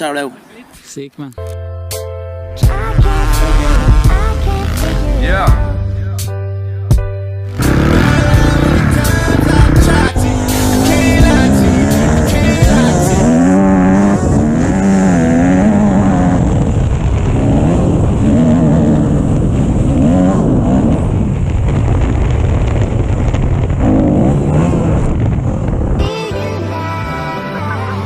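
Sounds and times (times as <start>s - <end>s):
dirt bike engines revving: 7.5s - 21.4s.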